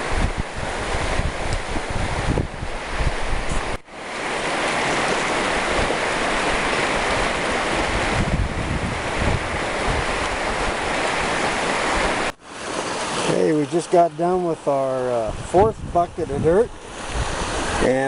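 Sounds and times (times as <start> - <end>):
wind buffeting microphone: 0.0 - 3.9, 4.8 - 12.3, 15.1 - 17.9
strong wind through trees: 0.0 - 18.0.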